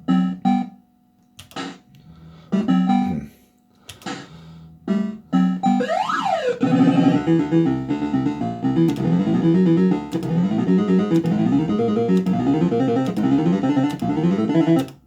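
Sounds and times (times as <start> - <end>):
electronic slot machine tune: 0.0 - 0.8, 2.5 - 3.2, 4.0 - 15.0.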